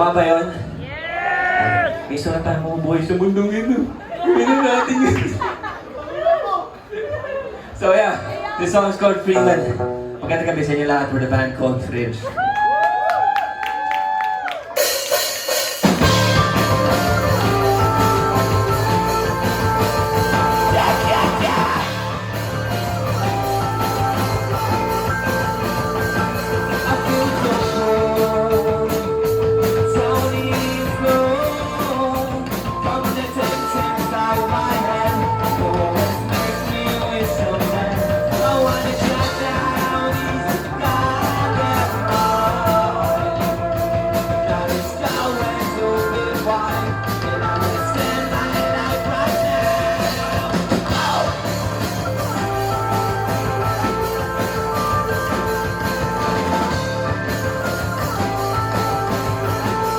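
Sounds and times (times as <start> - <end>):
live rock band playing: 14.4 - 59.9
person singing: 16.1 - 59.9.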